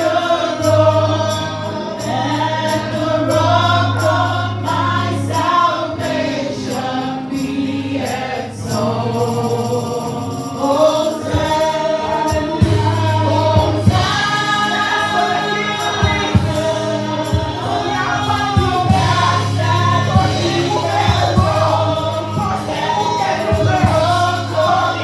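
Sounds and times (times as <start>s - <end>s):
congregation singing: 0.0s - 25.0s
drum beat: 11.3s - 25.0s
low bass: 16.1s - 24.8s.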